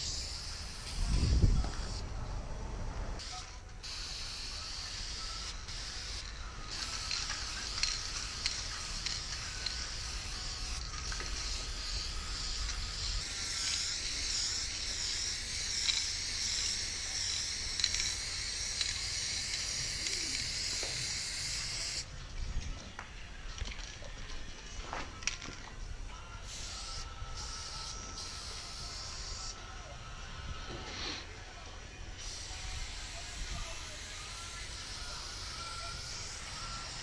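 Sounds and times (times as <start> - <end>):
spray paint can hissing: 0.0 - 2.0, 3.2 - 22.1, 26.5 - 29.6, 32.2 - 37.0.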